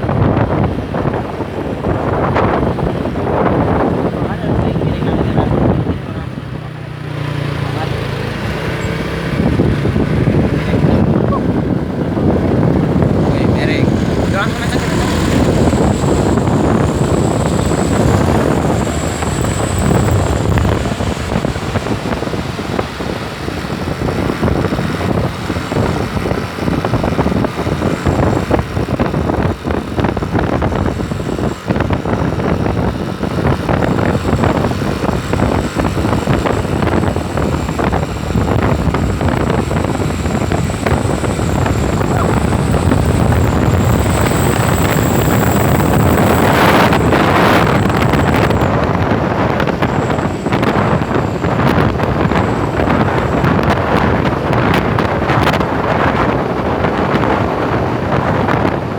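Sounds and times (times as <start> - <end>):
truck engine and road rumble: 0.0 - 58.9
thin high whine: 13.2 - 23.0, 33.6 - 53.8.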